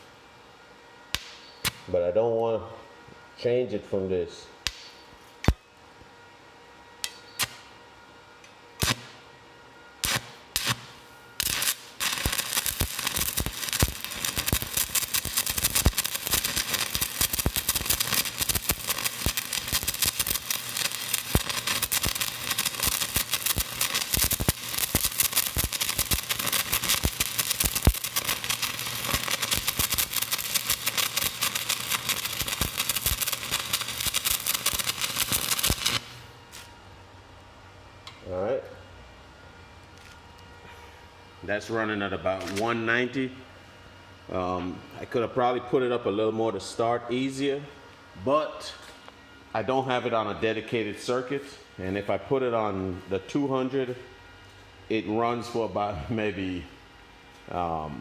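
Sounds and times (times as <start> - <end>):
welding rod strike pops: 1.1 - 1.9, 4.6 - 5.6, 7.0 - 7.7, 8.8 - 9.2, 10.0 - 36.7
welding arc crackling: 8.8 - 9.2, 10.0 - 36.7.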